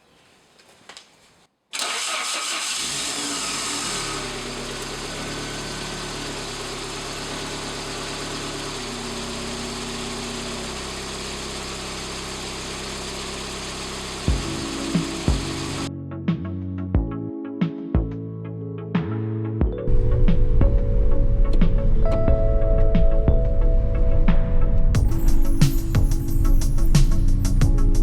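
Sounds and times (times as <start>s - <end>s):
car engine starting and idling: 1.7s - 15.9s, 19.9s - 28.0s.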